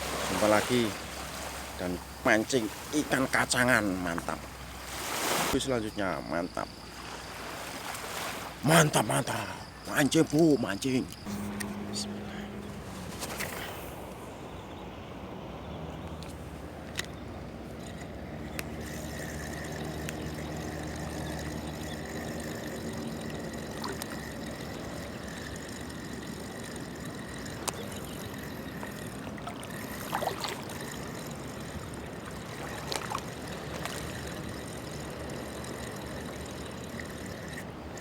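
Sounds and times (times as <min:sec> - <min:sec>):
low engine hum: 0:00.0 - 0:05.3, 0:09.4 - 0:38.0
water lapping on shore: 0:00.0 - 0:38.0.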